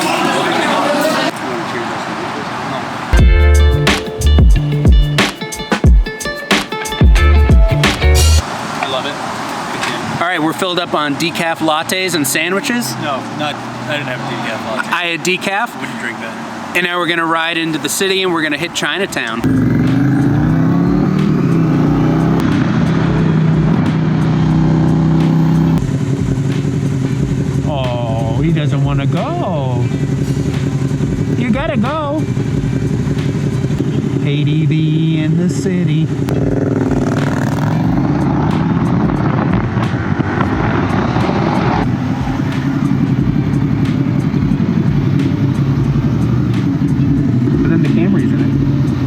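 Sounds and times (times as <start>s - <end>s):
motorcycle engine pulling away: 19.4s - 49.0s.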